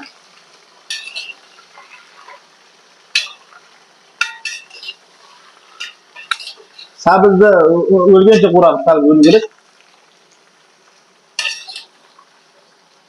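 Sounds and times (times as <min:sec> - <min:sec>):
carrots sizzling in hot fat: 0:00.0 - 0:13.0
utensil clinking against pot: 0:00.9 - 0:01.4, 0:03.2 - 0:03.5, 0:04.2 - 0:05.0, 0:05.8 - 0:07.0, 0:11.4 - 0:11.9.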